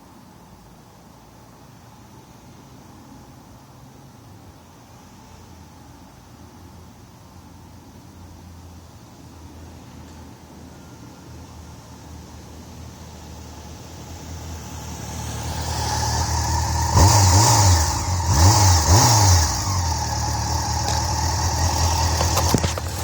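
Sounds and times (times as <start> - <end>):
motorcycle engine passing: 13.7 - 23.0.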